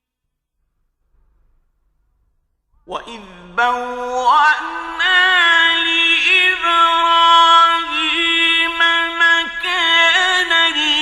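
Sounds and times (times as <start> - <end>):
man reciting melodically: 2.8 - 11.0.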